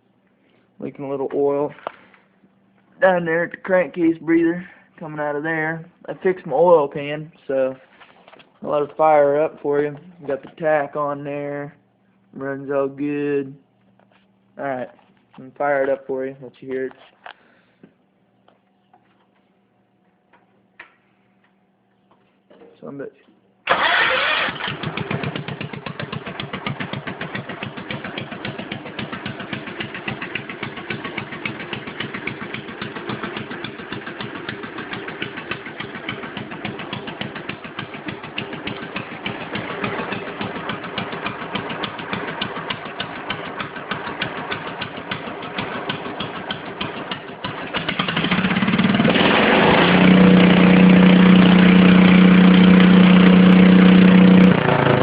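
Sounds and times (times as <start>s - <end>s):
garden tractor engine idling and revving: 23.7s - 55.0s.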